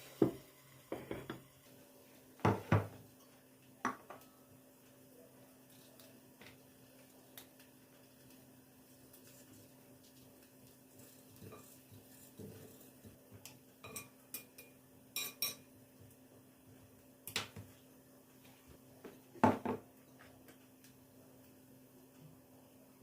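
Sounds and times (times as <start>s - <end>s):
faint steady hum: 0.0s - 23.0s
dishes and cutlery clinking: 13.8s - 15.7s.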